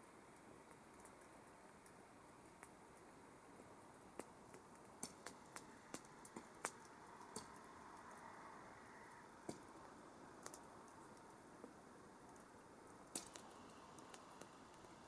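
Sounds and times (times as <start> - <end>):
campfire wood crackling: 0.0 - 15.0
fire hissing: 4.2 - 15.0.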